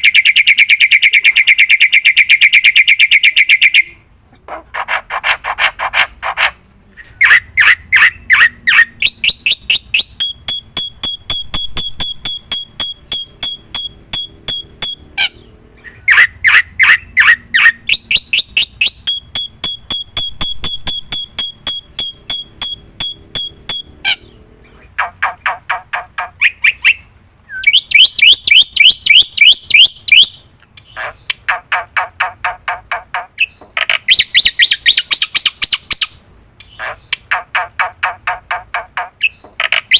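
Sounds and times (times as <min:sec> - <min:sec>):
bird singing rapid sharp notes: 0:07.2 - 0:25.8, 0:26.4 - 0:31.4.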